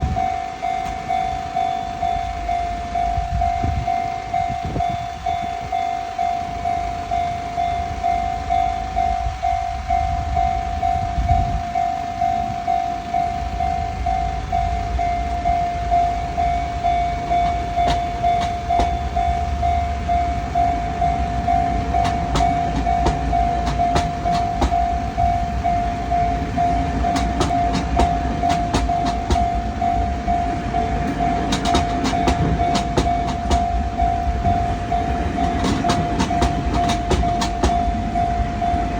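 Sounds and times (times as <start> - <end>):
pulsing warning tone: 0.0 - 38.9
train rumbling: 0.0 - 38.9
wheels clicking over rail joints: 11.8 - 38.9.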